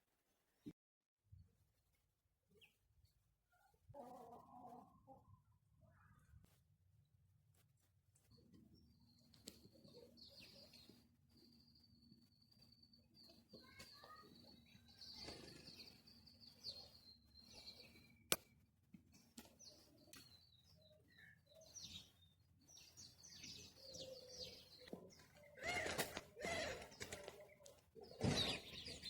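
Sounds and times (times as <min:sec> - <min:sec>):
faint birds chirping: 0:01.8 - 0:29.0.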